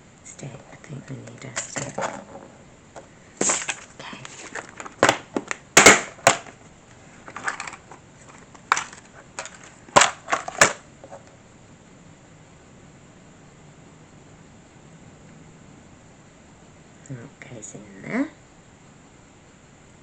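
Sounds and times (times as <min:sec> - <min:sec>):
plastic parts clicking and knocking: 0:07.3 - 0:07.9, 0:08.6 - 0:10.8.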